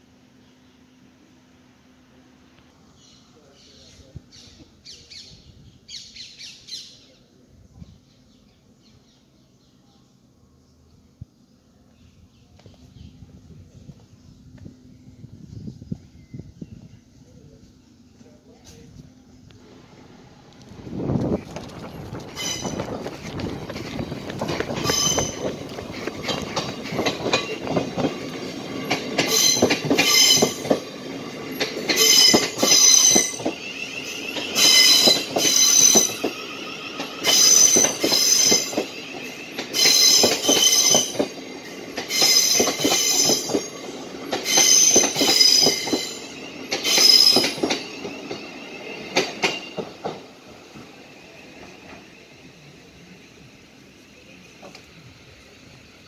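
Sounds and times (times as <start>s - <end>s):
electric train passing: 17.3s - 56.0s
wheels clattering over rail joints: 21.1s - 33.6s, 39.6s - 50.4s
high-pitched wheel squeals: 22.4s - 23.0s, 24.8s - 25.6s, 29.3s - 30.6s, 32.0s - 41.2s.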